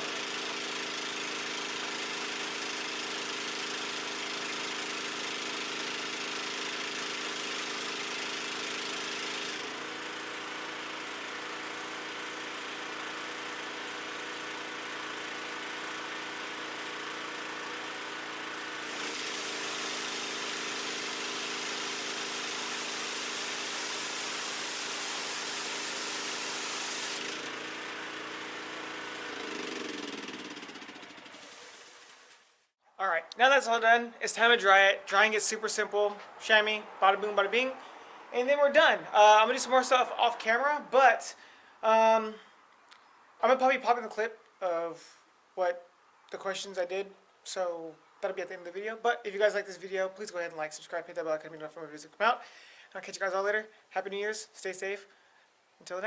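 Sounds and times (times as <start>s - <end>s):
pressure washer engine running: 0.0s - 32.6s.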